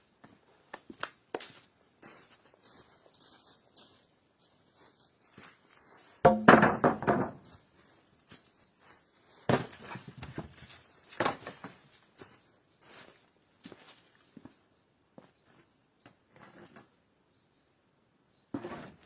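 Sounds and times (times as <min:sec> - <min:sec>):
loud knocks: 0:06.3 - 0:07.4.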